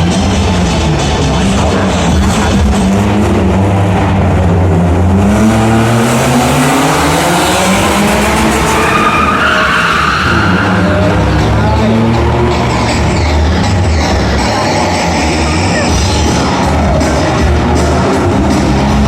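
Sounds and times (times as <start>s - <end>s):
car engine revving: 0.0s - 19.0s
tyres skidding: 0.0s - 19.0s
tyre squeal: 8.6s - 11.3s.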